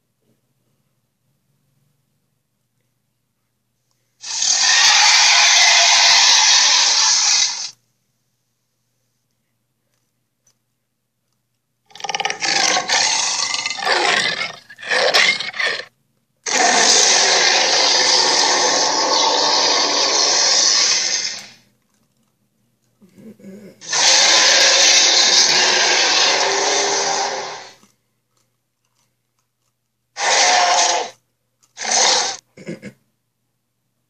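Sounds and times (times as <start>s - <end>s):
dinosaur roar: 4.2s - 7.7s, 11.9s - 21.6s, 23.6s - 27.8s, 30.2s - 31.2s, 31.8s - 32.4s.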